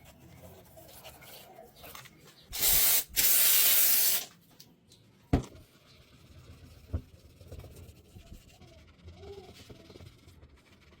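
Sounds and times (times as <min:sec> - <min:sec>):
spray hiss: 0:02.6 - 0:04.3.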